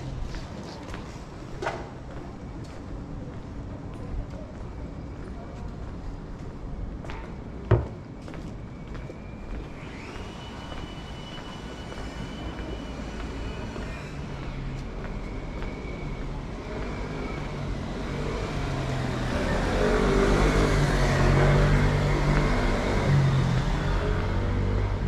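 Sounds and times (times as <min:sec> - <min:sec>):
faint high whine: 0:07.8 - 0:18.0.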